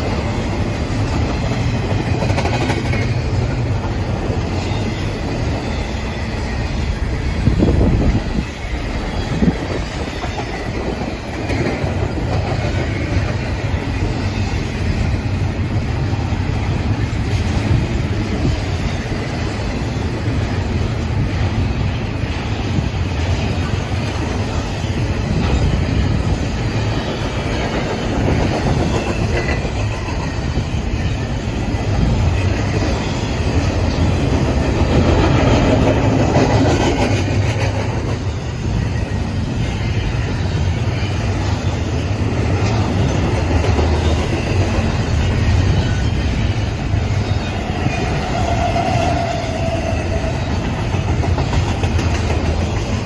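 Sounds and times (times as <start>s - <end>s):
wheels clacking over rail joints: 0.0s - 21.5s, 22.8s - 53.0s
freight train rumbling past: 0.0s - 53.0s.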